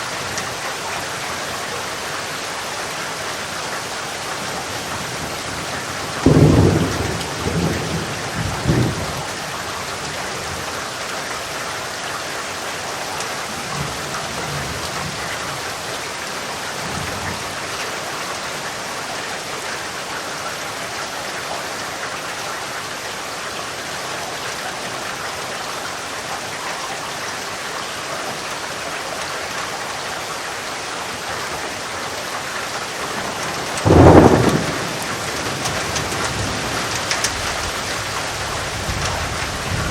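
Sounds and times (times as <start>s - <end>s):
steady rain: 0.0s - 39.9s
thunder rumbling: 5.3s - 9.4s, 33.0s - 39.9s.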